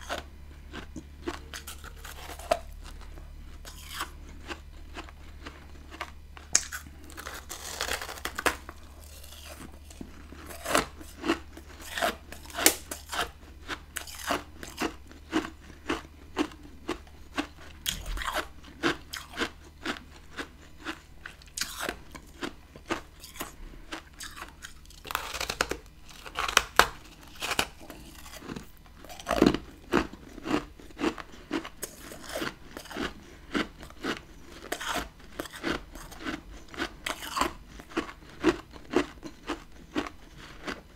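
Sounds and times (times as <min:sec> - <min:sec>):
person crunching frozen frost: 0:00.0 - 0:40.9.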